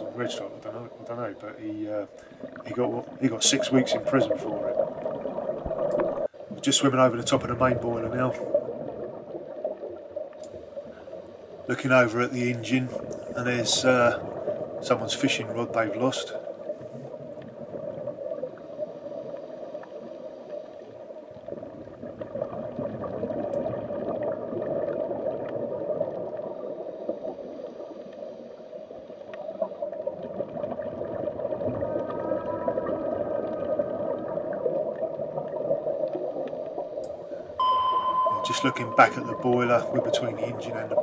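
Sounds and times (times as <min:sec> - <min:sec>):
underwater watery rush: 0:00.0 - 0:41.0
water gurgling: 0:00.0 - 0:41.0.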